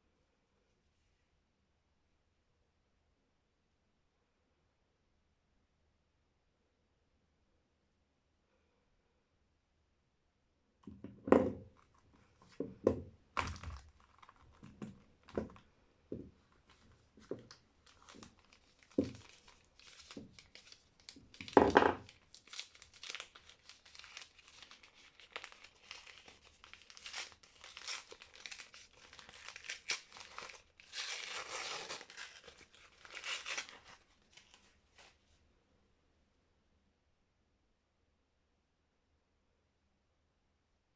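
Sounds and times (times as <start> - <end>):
wrapper crackling and crinkling: 13.3 - 35.2
wrapper tearing: 13.4 - 15.6, 16.5 - 35.2.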